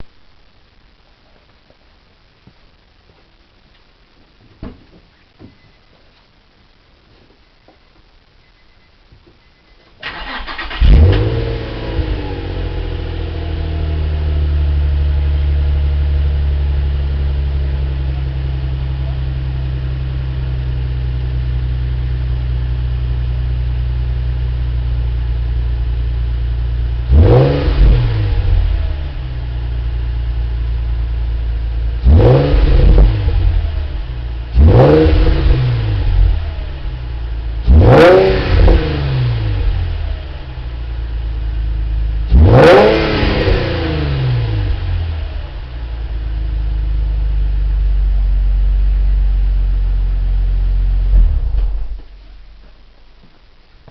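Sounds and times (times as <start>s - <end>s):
car engine idling and revving: 10.0s - 52.1s.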